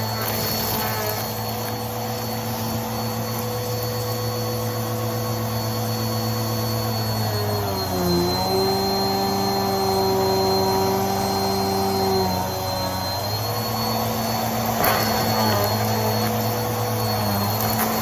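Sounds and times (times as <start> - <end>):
debris rattling in vacuum: 0.0 - 4.2, 14.5 - 18.0
vacuum cleaner running: 0.0 - 18.0.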